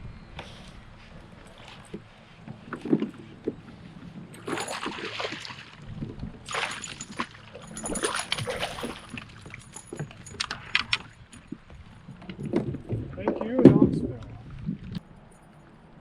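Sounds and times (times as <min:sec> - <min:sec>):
paddle strokes splashing water: 0:00.4 - 0:15.9
low knocks against hull: 0:11.0 - 0:15.0.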